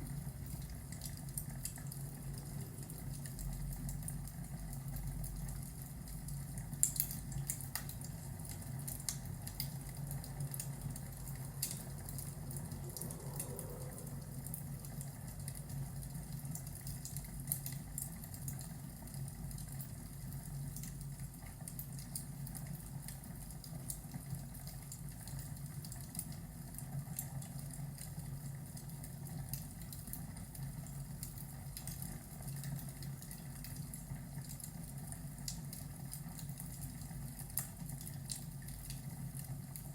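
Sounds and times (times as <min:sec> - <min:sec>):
fire crackling and popping: 0:00.0 - 0:39.9
low rumble: 0:11.0 - 0:16.5.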